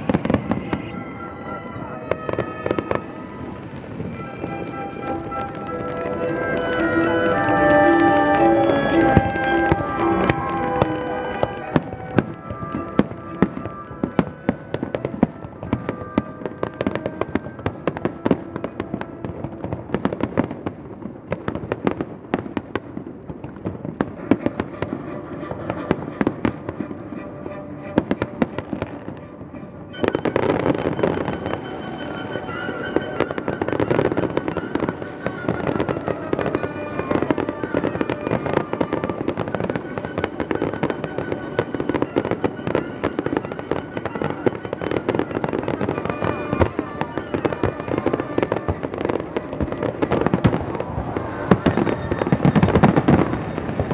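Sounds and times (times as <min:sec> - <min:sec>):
music: 0:00.0 - 0:22.2, 0:23.9 - 0:53.9
fireworks bursting: 0:00.0 - 0:53.9.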